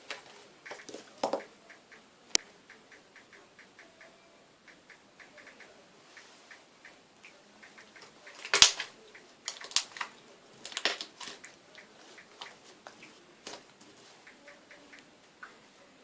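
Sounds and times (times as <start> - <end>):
slime popping and crackling: 8.4 - 8.9.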